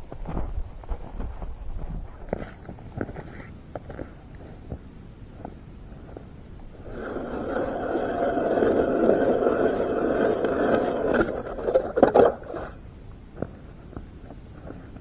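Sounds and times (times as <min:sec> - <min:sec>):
scraping on snow or ice: 0:06.0 - 0:15.0.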